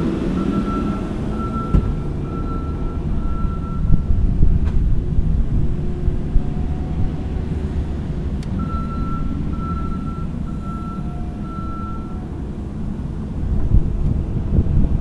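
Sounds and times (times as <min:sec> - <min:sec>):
diesel engine rumbling: 0:00.0 - 0:15.0
backup alarm beeping: 0:08.6 - 0:12.2.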